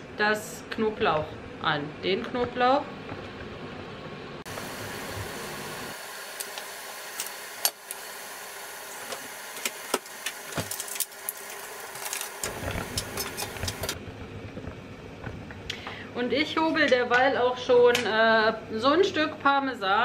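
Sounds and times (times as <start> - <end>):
garlic sizzling in oil: 4.5 - 14.4.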